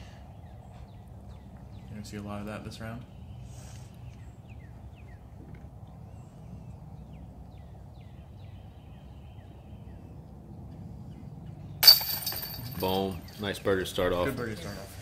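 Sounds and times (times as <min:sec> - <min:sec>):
small birds chirping: 0:00.0 - 0:11.8
low steady background rumble: 0:00.0 - 0:15.0.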